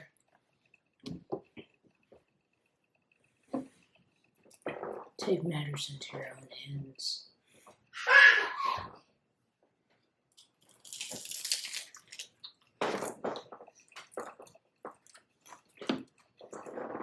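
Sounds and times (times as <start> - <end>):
crunchy food being eaten: 10.3 - 17.0.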